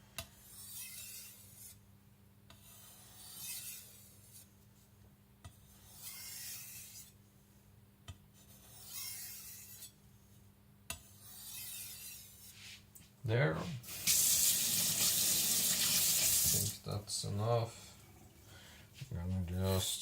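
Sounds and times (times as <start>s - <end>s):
knife blade scraping: 0.4s - 1.8s, 2.6s - 4.5s, 5.8s - 7.1s, 8.4s - 10.0s, 11.1s - 12.8s.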